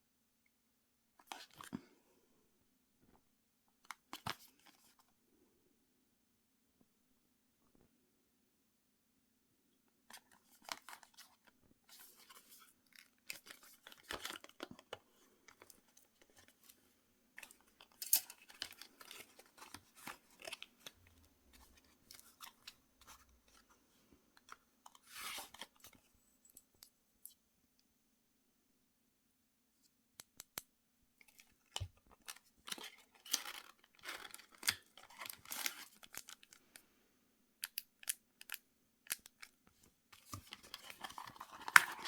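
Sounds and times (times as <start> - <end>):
packaging rustling and tearing: 32.2 - 36.6, 40.2 - 42.0.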